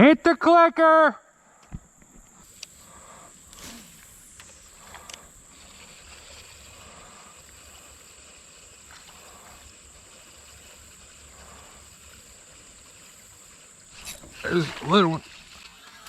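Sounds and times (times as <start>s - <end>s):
kayak and water sounds: 1.6s - 16.0s
high-pitched insect drone: 1.8s - 16.0s.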